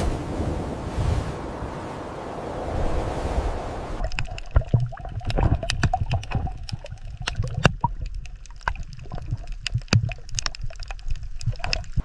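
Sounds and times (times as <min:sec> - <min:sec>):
steady rushing noise: 0:00.0 - 0:04.0
water splashing and gurgling: 0:00.0 - 0:12.0.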